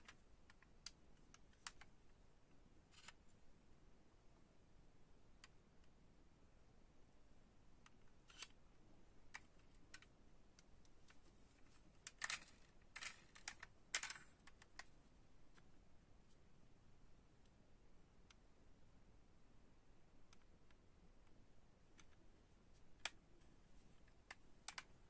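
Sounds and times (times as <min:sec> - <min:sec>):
clicks of diecast model cars: 0:02.9 - 0:03.2, 0:07.8 - 0:08.6, 0:11.1 - 0:14.9, 0:24.1 - 0:24.9.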